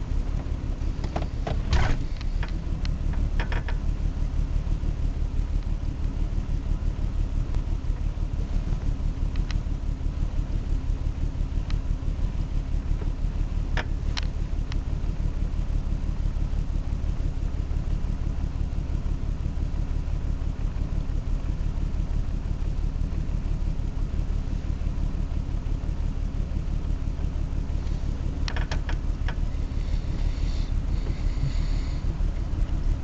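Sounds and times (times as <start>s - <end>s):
low rumble: 20.4s - 33.0s.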